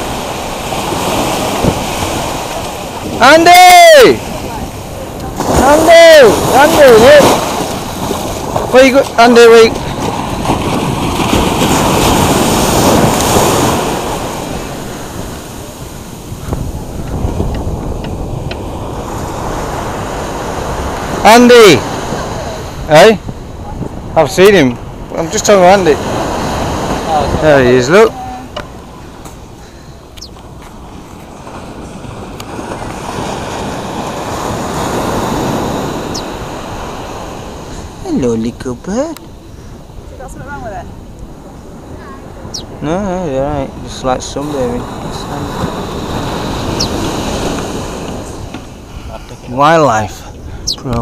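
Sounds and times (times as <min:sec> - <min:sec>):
wind buffeting microphone: 0:00.0 - 0:21.2, 0:21.8 - 0:51.0
ocean waves on a beach: 0:00.0 - 0:51.0.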